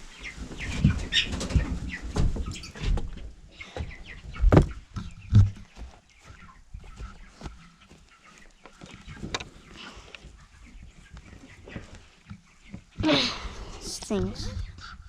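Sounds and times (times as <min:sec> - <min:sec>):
chickens peeping and clucking: 0:00.0 - 0:15.0
loud thumps: 0:04.4 - 0:05.6.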